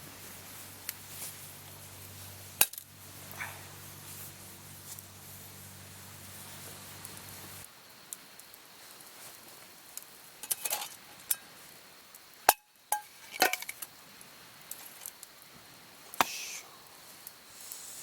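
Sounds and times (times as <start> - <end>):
rustling: 0.0 - 7.6
small hard objects clinking: 12.5 - 13.9.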